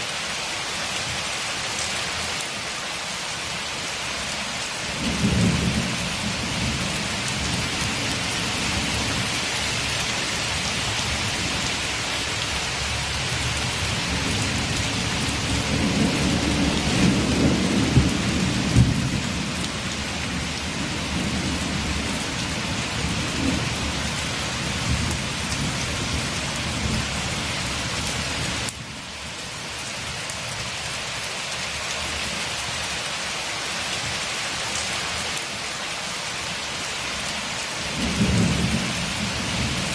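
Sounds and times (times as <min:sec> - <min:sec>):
rain falling on a window: 0:00.1 - 0:39.9
thunder rumbling: 0:05.0 - 0:11.8, 0:13.5 - 0:24.0, 0:37.9 - 0:39.9.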